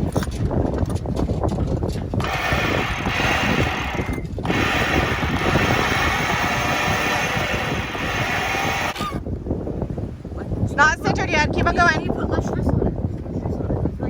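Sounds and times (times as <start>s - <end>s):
winch ratchet clicking: 2.2s - 9.1s.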